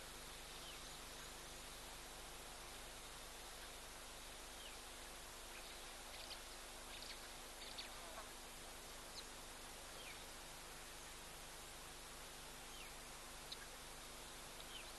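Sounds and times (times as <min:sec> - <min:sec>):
background hiss: 0:00.0 - 0:14.9
faint bird chirps: 0:04.5 - 0:08.3, 0:12.6 - 0:14.9.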